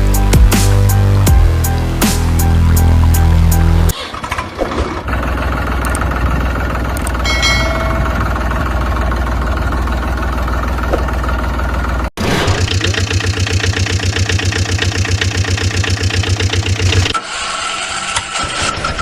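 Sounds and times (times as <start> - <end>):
music: 0.0 - 3.9
vehicle engine starting and idling: 0.7 - 19.0.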